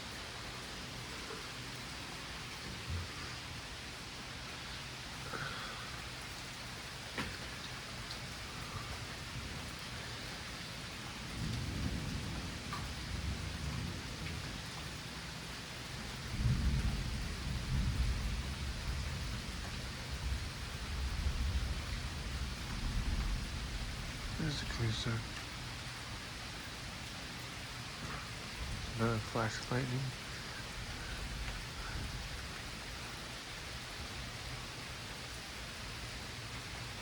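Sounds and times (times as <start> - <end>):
steady rain falling: 0.0 - 37.0
rolling thunder: 11.2 - 15.2, 16.0 - 25.4, 30.1 - 32.7.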